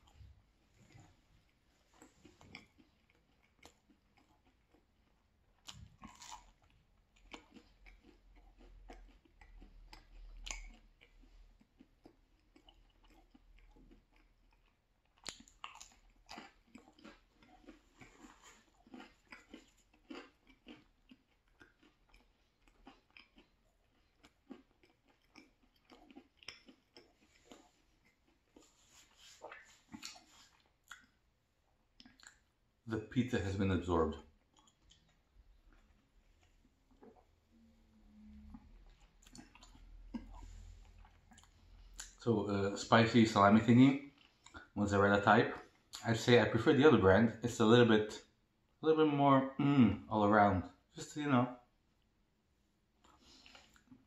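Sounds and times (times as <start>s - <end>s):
chewing and biting pizza: 0.0s - 32.6s, 34.2s - 42.2s, 43.9s - 44.8s, 52.9s - 54.0s.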